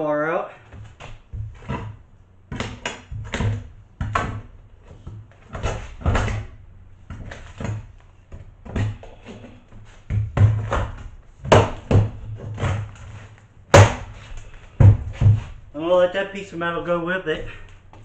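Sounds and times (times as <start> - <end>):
wood and metal scraping: 0.6 - 15.7.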